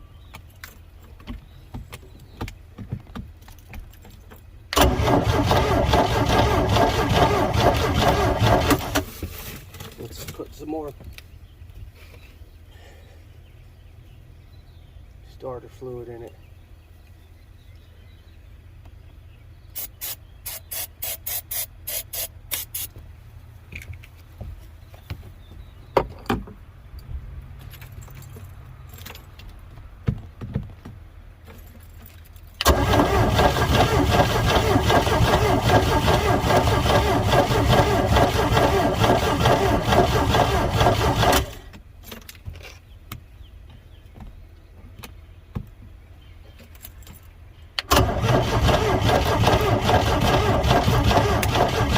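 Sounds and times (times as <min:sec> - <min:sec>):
starter motor cranking engine: 0:04.8 - 0:09.2, 0:32.6 - 0:41.7, 0:47.8 - 0:51.9.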